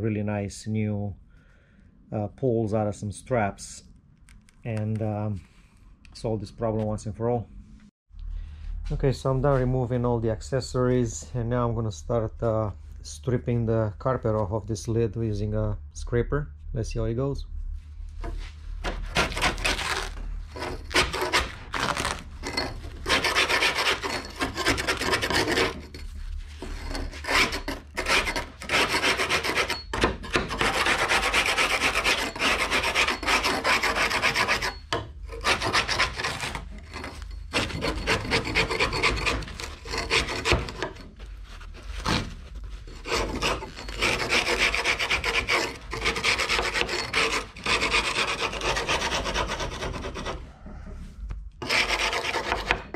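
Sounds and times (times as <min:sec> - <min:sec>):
scraper stripping carpet: 0:18.8 - 0:25.8.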